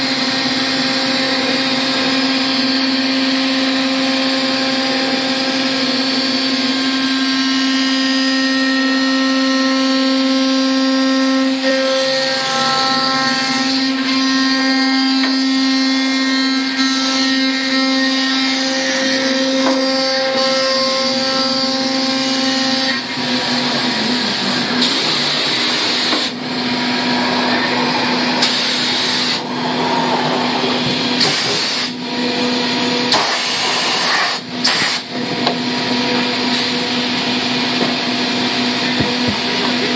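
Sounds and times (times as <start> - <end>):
cnc machine whine: 0.0 - 39.9
machine low hum: 23.0 - 33.1.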